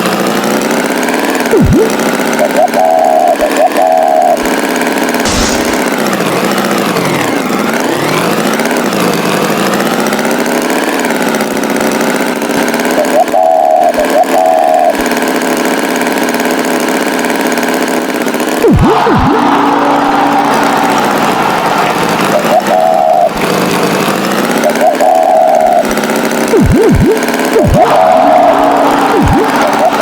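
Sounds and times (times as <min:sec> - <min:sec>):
cartoon tractor engine running: 0:00.0 - 0:30.0
high warbling tone: 0:01.5 - 0:03.8, 0:05.3 - 0:06.2, 0:18.6 - 0:20.0, 0:24.8 - 0:30.0.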